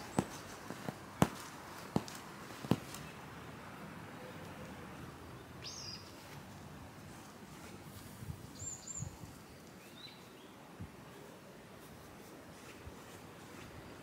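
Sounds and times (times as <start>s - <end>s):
faint garden ambience: 0.0s - 14.0s
high wild bird calls: 5.4s - 6.2s, 8.5s - 10.6s.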